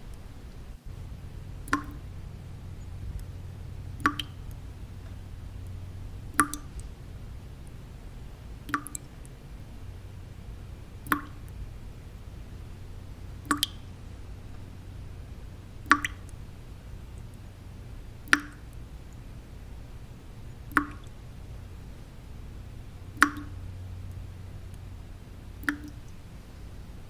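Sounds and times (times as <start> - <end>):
low white noise: 0.0 - 27.0
water drops plinking: 0.9 - 7.0, 8.6 - 9.3, 11.0 - 11.6, 12.6 - 14.9, 15.8 - 16.4, 18.2 - 19.2, 20.5 - 21.2, 23.1 - 24.8, 25.6 - 26.2.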